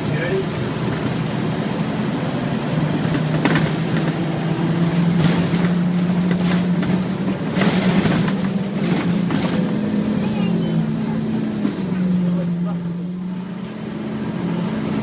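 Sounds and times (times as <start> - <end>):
bus engine droning: 0.0 - 15.0
knocks and rattles: 3.0 - 4.3, 5.0 - 9.8.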